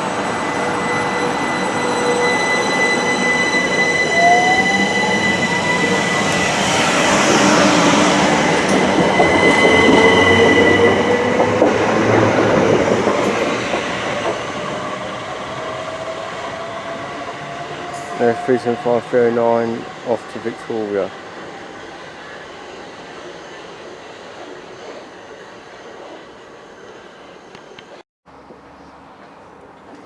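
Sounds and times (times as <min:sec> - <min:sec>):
traction motors whining: 0:00.0 - 0:20.6.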